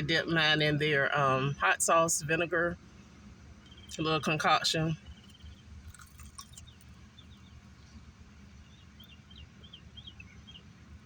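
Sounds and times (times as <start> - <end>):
low steady hum: 0.0 - 11.0
crunchy bites of fried food: 5.2 - 7.4.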